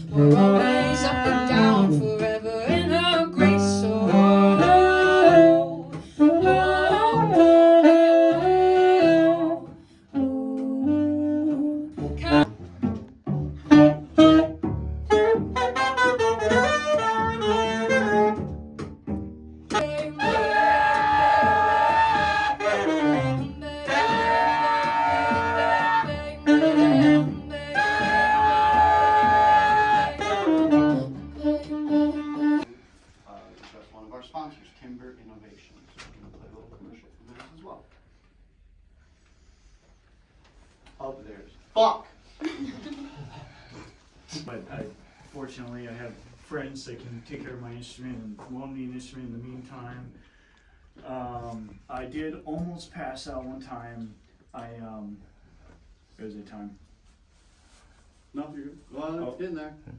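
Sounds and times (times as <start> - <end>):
bass: 0.0 - 32.7
saxophone melody: 0.0 - 32.8
live band music: 0.0 - 32.9.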